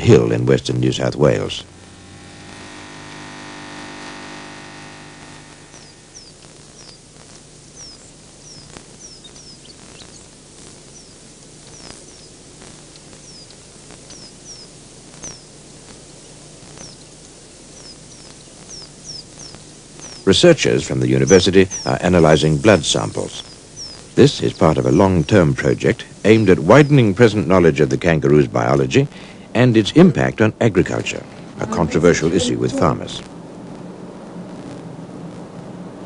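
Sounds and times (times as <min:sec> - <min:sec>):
humming tone with overtones: 0:00.0 - 0:28.0, 0:31.3 - 0:36.0
faint hiss: 0:00.0 - 0:36.0
bird chirping downward: 0:05.6 - 0:27.2.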